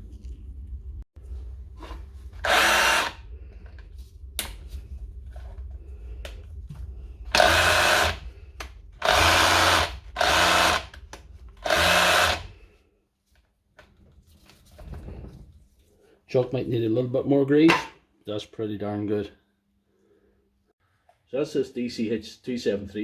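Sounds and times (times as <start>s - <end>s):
rotary hammer bursts: 2.4s - 3.2s, 7.3s - 8.3s, 9.0s - 11.0s, 11.6s - 12.5s.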